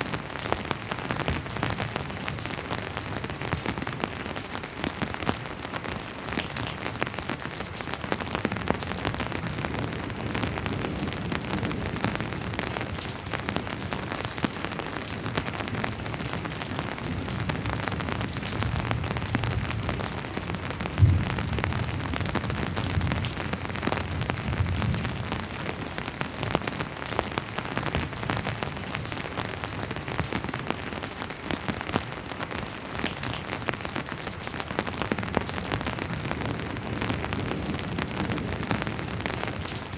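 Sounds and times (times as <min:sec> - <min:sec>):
rain pattering: 0:00.0 - 0:39.9
distant thunder rumble: 0:18.6 - 0:25.2.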